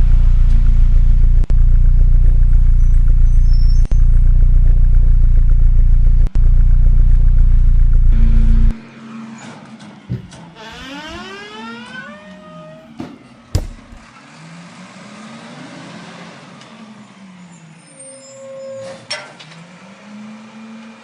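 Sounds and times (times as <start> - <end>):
low engine drone: 0.0 - 9.8.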